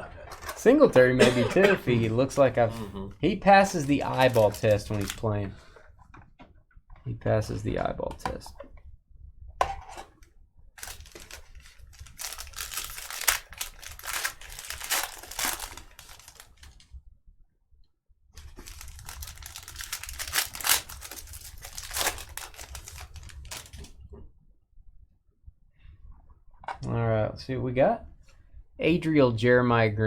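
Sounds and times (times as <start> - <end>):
card wrapper tearing and rustling: 3.7 - 5.4, 10.8 - 16.8, 18.4 - 24.0.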